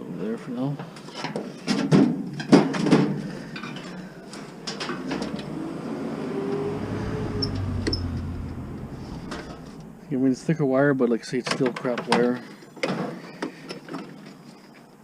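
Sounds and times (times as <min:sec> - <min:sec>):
steady low hum: 0:03.0 - 0:10.8.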